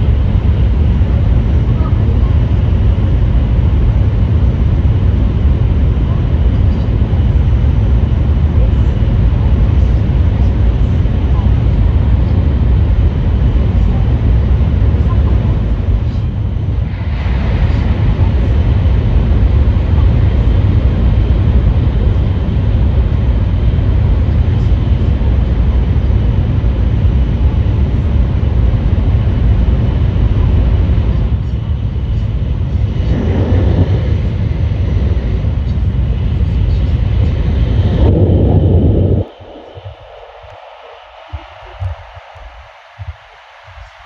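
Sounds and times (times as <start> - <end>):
train cabin low rumble: 0.0 - 44.0
rushing noise: 16.7 - 19.8, 32.7 - 35.7, 37.1 - 44.0.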